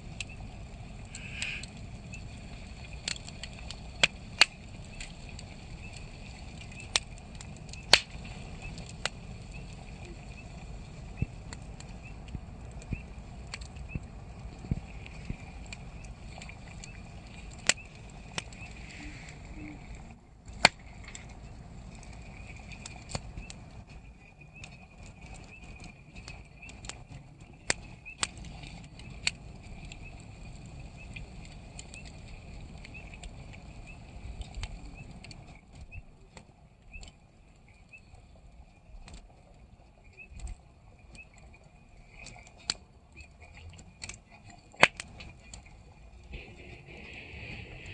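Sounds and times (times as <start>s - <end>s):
campfire crackling: 0.0s - 47.9s
low rumble of flames: 0.0s - 47.9s
sharp pops from fire: 1.0s - 19.4s, 20.4s - 21.4s, 22.0s - 37.1s, 42.1s - 47.9s.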